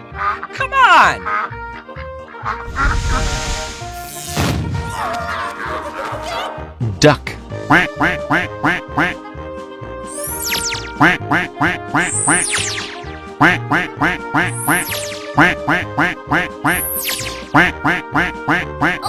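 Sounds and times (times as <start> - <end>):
bouncy children's music: 0.0 - 2.8, 5.0 - 19.0
cartoon duck quacks: 7.7 - 9.2, 11.0 - 12.5, 13.4 - 19.0
high falling whistle-like glide: 10.1 - 10.9, 12.2 - 13.1.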